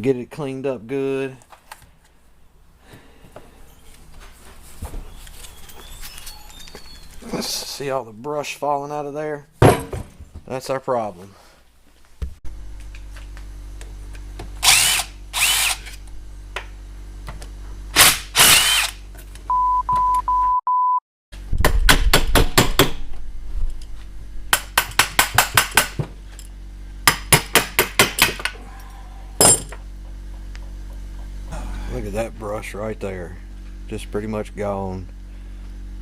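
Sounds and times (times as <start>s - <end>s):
power driver whirring: 14.6s - 16.2s, 17.9s - 19.0s
short beep: 19.5s - 21.0s
steady hum: 22.8s - 36.0s.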